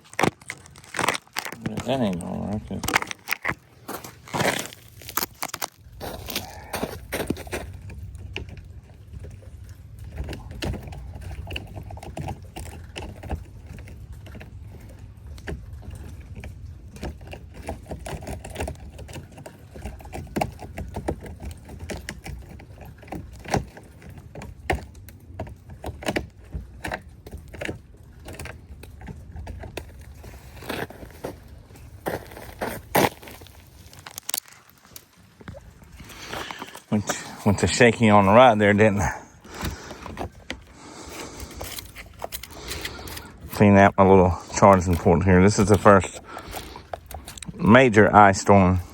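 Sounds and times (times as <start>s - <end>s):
ice crunching and cracking: 0.0s - 48.9s.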